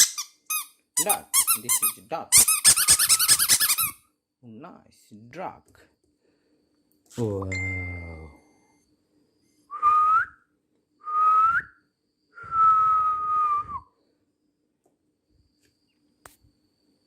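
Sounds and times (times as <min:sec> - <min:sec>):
whistled tones: 0:09.4 - 0:14.0.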